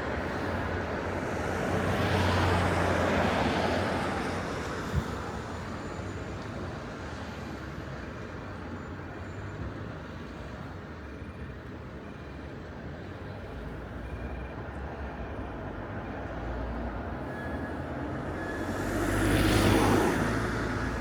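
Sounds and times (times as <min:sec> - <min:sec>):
traffic hum: 0:14.9 - 0:21.0
vehicle passing: 0:18.2 - 0:21.0.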